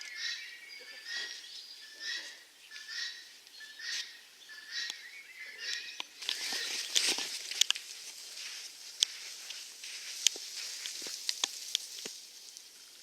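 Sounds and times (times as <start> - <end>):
birds calling: 0.0 - 12.2
rustling: 6.2 - 13.0.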